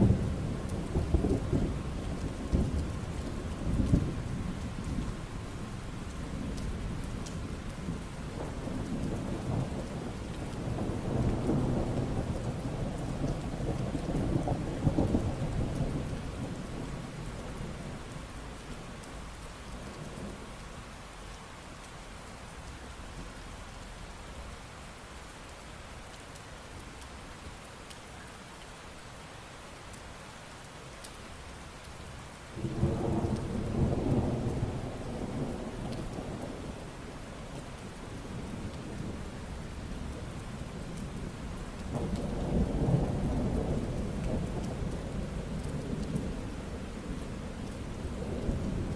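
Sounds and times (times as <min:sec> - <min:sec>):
steady rain: 0:00.0 - 0:48.9
rolling thunder: 0:06.4 - 0:17.1, 0:32.6 - 0:48.9.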